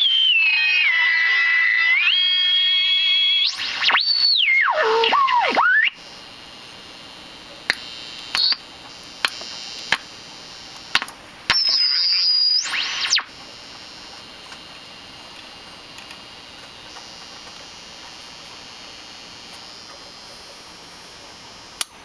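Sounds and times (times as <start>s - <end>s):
high whistle sweeping upward: 0.0s - 6.0s, 11.5s - 13.3s
radio whistles gliding in pitch: 0.0s - 6.0s, 7.9s - 8.6s, 11.5s - 13.3s
radio hiss: 0.0s - 22.0s
sharp clicks: 7.7s - 10.1s.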